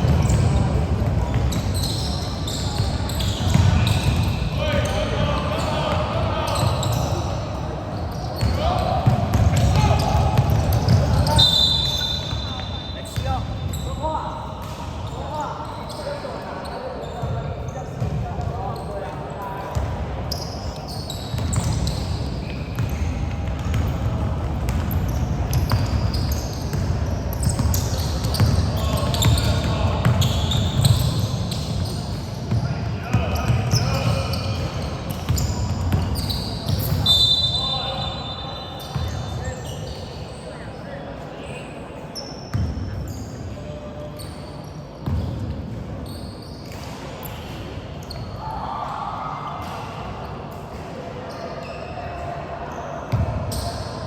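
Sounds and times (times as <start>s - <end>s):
sneakers squeaking on floor: 0.0s - 48.5s, 49.6s - 54.0s
basketball bouncing: 2.8s - 4.4s, 8.4s - 11.2s, 22.8s - 31.0s.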